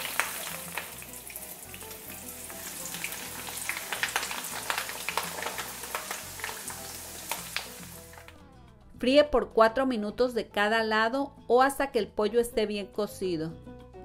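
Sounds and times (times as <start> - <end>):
chicken frying with crackles and pops: 0.0 - 8.4.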